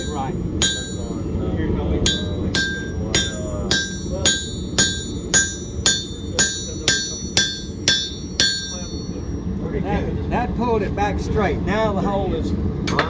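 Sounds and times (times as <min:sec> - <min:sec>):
hammer striking metal chisel: 0:00.0 - 0:01.2, 0:02.1 - 0:09.2.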